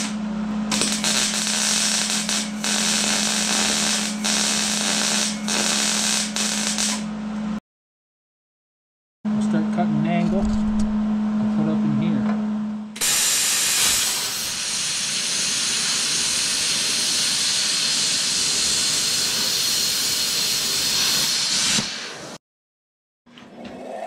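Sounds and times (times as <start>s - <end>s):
welder sizzling hiss: 0.0s - 7.1s, 13.0s - 22.4s.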